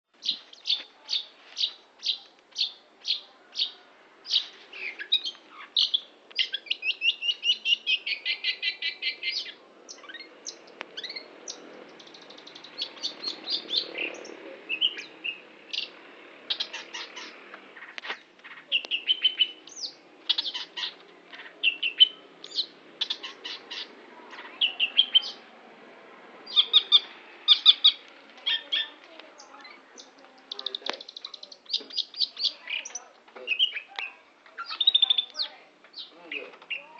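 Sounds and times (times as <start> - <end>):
shrike singing: 0.2 - 36.9.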